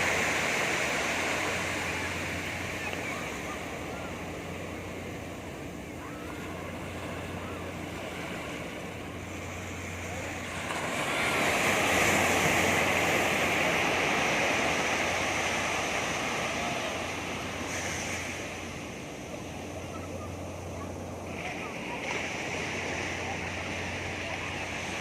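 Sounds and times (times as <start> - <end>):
surf washing on beach: 0.0 - 25.0
wave breaking: 0.0 - 25.0.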